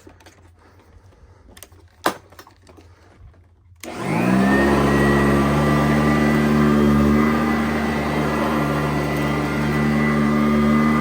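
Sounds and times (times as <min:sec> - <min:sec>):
vacuum cleaner motor whining: 0:03.8 - 0:11.0.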